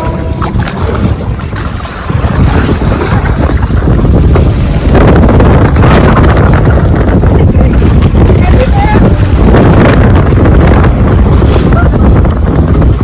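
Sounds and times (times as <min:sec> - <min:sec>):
water sloshing: 0:00.0 - 0:13.0
wind buffeting microphone: 0:00.0 - 0:13.0.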